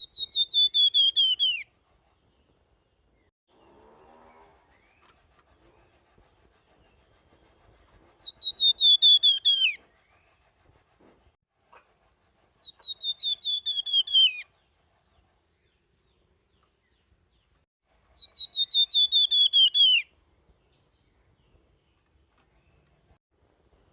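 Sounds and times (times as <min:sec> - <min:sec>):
songbird whistling: 0:00.0 - 0:01.7, 0:08.2 - 0:10.3, 0:12.6 - 0:14.5, 0:18.2 - 0:20.1.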